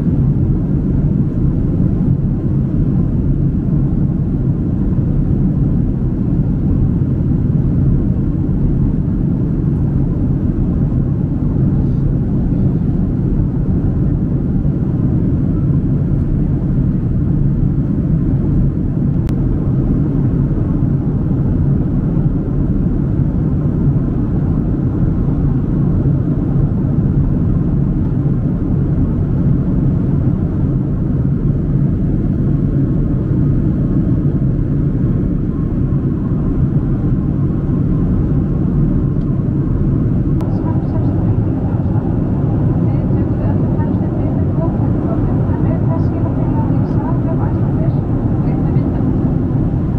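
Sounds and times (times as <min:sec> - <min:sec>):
jet engine and airflow rumble: 0:00.0 - 0:49.9
faint low hum: 0:35.3 - 0:49.9.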